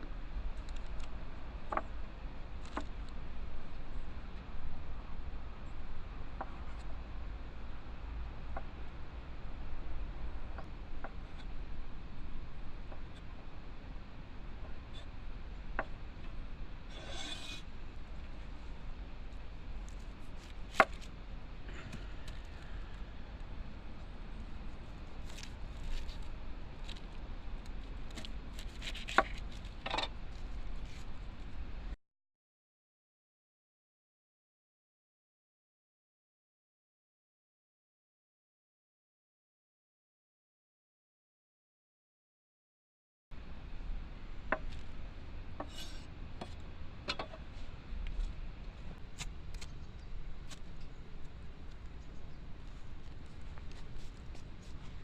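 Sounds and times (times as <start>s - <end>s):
steady low background noise: 0.0s - 32.0s, 43.4s - 55.0s
knife cutting on cutting board: 16.9s - 17.6s.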